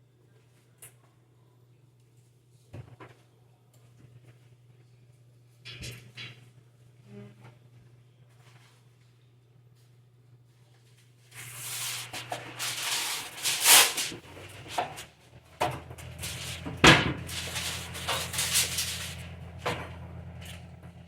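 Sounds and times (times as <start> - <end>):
rustling and scraping: 11.3 - 15.1, 15.9 - 20.8.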